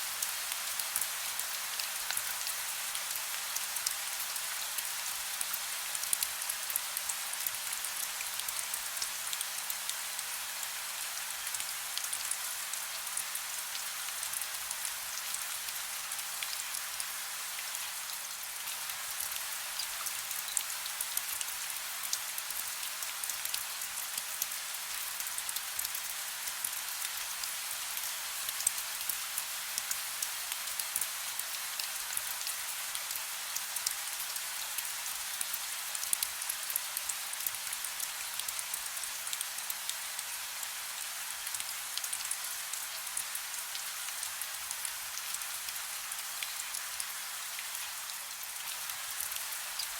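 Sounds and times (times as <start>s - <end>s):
soft rain: 0.0s - 49.9s.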